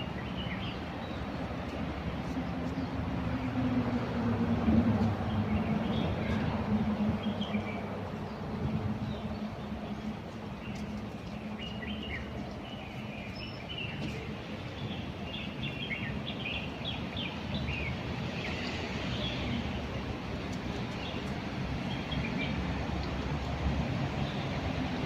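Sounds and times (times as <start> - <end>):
low rumble of road traffic: 0.0 - 25.0
small birds chirping: 7.2 - 19.8.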